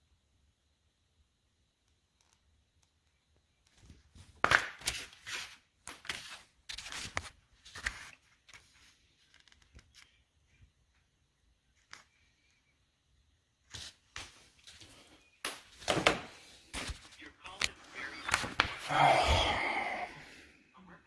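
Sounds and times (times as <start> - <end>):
rustling and scraping handling noise: 3.7 - 11.0, 13.6 - 18.8.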